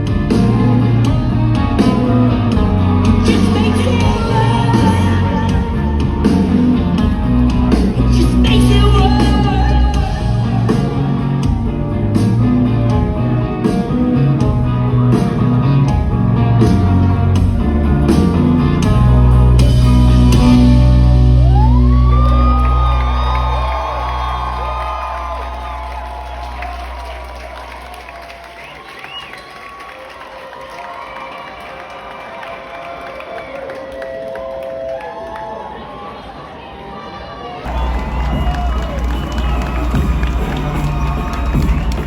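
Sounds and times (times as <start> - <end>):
live rock band playing: 0.0 - 28.0, 37.7 - 42.0.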